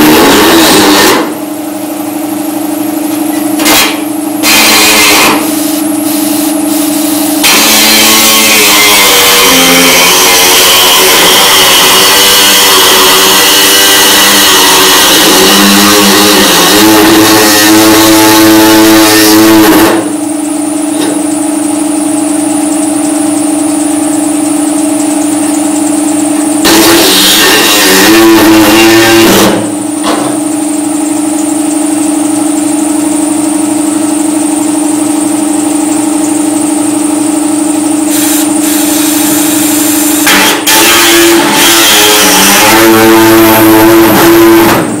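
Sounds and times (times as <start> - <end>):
cut-off wheel cutting sheet metal: 0.0 - 1.5, 3.6 - 20.2, 26.6 - 30.4, 38.0 - 45.0.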